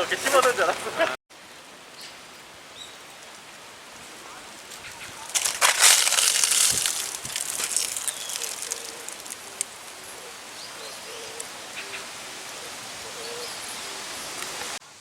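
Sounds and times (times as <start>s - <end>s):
crackling rustle: 0.0s - 0.8s, 1.5s - 15.0s
steady hiss: 0.0s - 15.0s.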